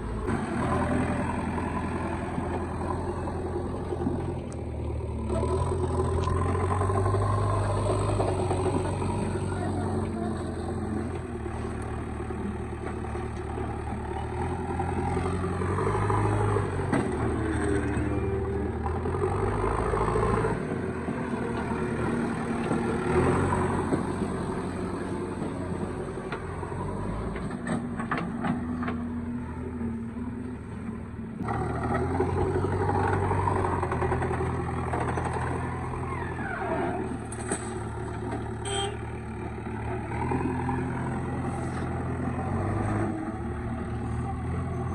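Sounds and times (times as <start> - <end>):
diesel engines running: 0.0 - 44.9.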